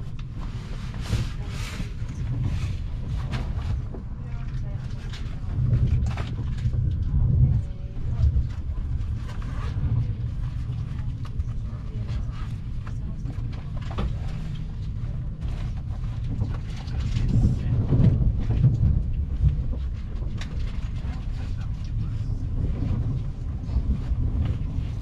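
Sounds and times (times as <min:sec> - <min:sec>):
track clicks and clatter: 0:00.0 - 0:25.0
train wheels rumbling on rails: 0:00.0 - 0:25.0.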